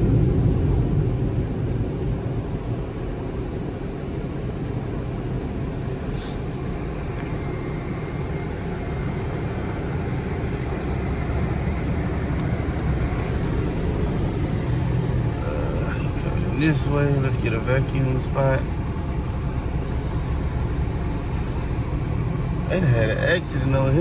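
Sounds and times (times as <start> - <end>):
car engine rumble: 0.0 - 24.0
faint high whine: 0.0 - 24.0.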